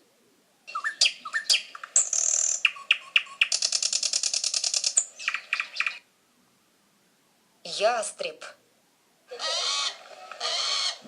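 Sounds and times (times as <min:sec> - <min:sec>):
nightingale singing: 0:00.6 - 0:06.1.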